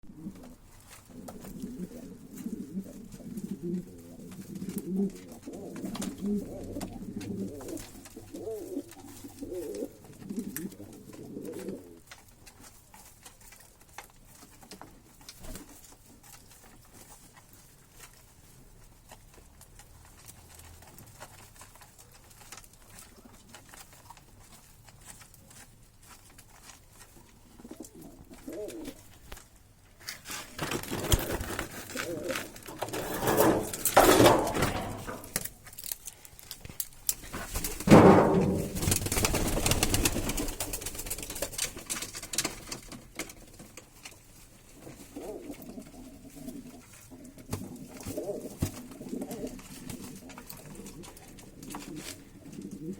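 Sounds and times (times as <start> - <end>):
pigeons cooing: 0.1 - 12.1, 27.4 - 29.1, 30.9 - 35.4, 44.8 - 52.9.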